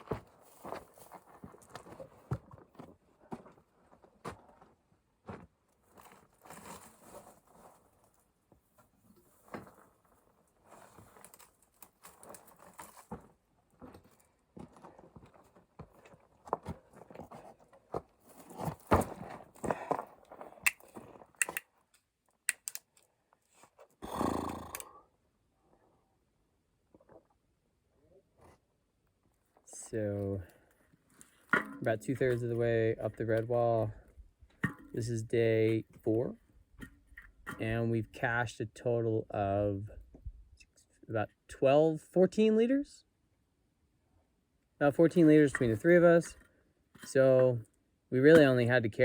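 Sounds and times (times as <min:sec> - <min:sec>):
footsteps on loose rock and gravel: 0:00.0 - 0:21.4
footsteps crunching on gravel: 0:11.9 - 0:21.3.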